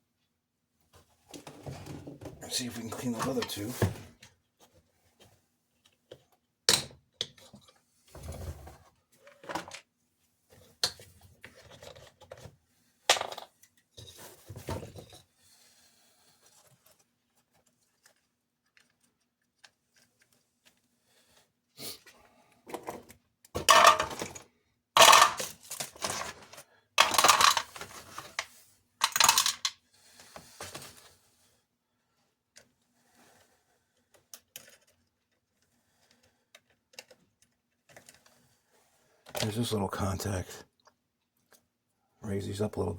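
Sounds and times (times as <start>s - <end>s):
tools clicking and clattering: 23.6s - 24.4s, 25.0s - 29.7s.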